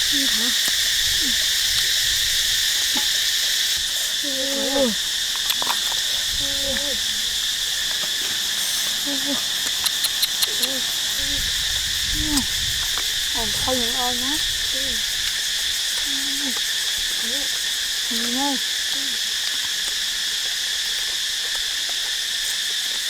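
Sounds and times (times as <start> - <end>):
low voice-like sounds: 0.0 - 1.4, 4.2 - 5.0, 6.3 - 7.4, 8.9 - 9.5, 10.5 - 11.5, 12.1 - 12.5
insects chirping: 0.0 - 23.0
sharp clicks: 9.3 - 11.1.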